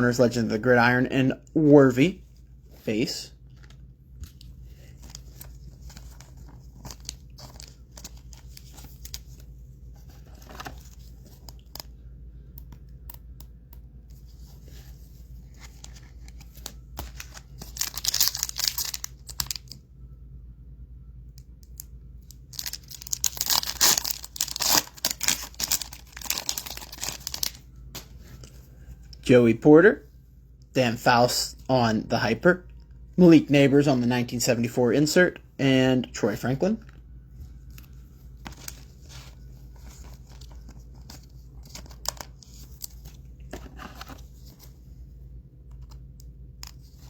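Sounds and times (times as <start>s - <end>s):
wrappers tearing and crinkling: 17.1s - 19.8s, 22.4s - 27.6s.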